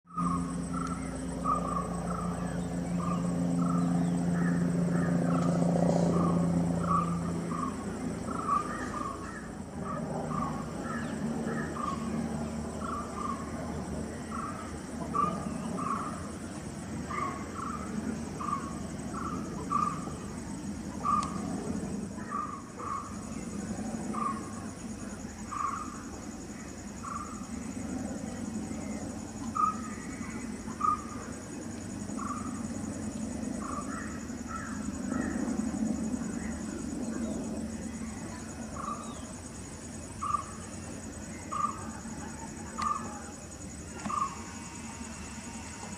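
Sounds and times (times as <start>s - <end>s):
distant helicopter droning: 0.1s - 45.9s.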